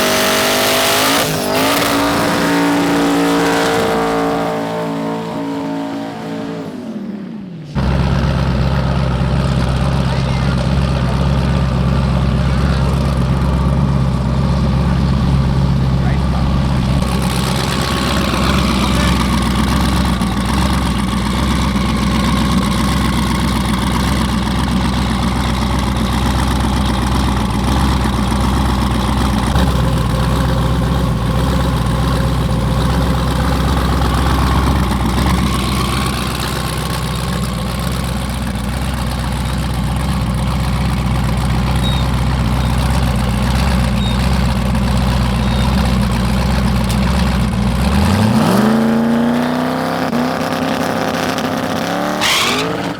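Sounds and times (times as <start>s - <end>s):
car engine idling: 7.2s - 52.9s.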